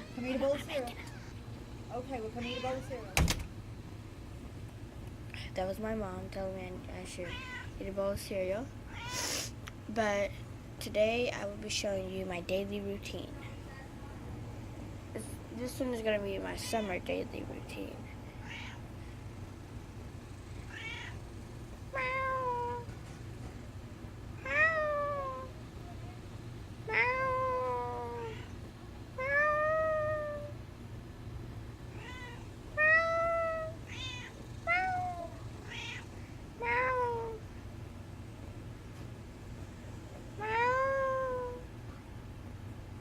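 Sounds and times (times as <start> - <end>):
cat meowing: 2.4 - 2.9, 7.3 - 7.7, 8.9 - 9.4, 18.4 - 18.8, 20.7 - 21.2, 21.9 - 22.9, 24.4 - 25.5, 26.9 - 28.5, 29.2 - 30.5, 31.9 - 37.4, 40.4 - 41.6.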